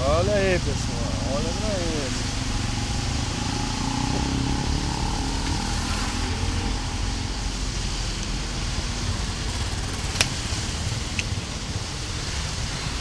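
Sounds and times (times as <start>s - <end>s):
vehicle engine rumbling: 0.0s - 13.0s
sharp click: 10.2s - 10.4s.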